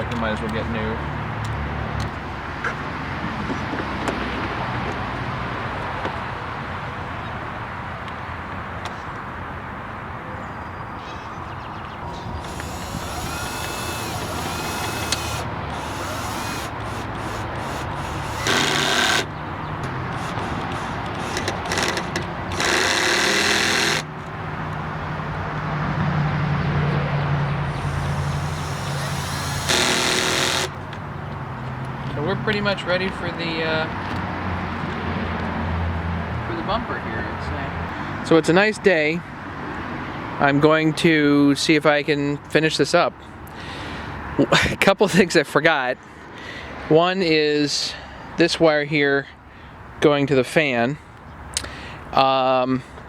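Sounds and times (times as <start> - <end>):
traffic noise: 0.0 - 53.0
wind: 0.0 - 53.0
cordless drill driving screws: 12.2 - 24.3, 27.7 - 30.9.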